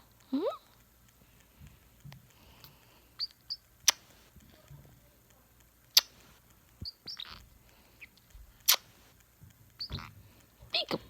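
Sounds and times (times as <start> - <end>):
sharp clicks: 0.0 - 11.0
cockatoo squeaky chirps: 3.2 - 4.1, 5.9 - 8.9, 9.8 - 11.0.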